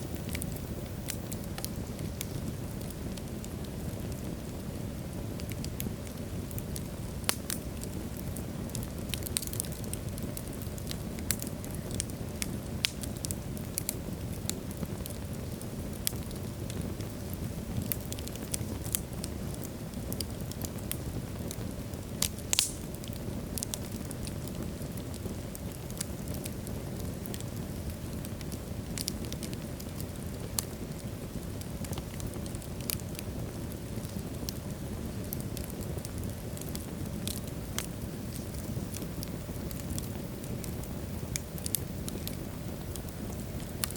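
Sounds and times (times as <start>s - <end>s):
fire crackling and popping: 0.0s - 43.9s
low rumble of flames: 0.0s - 43.9s.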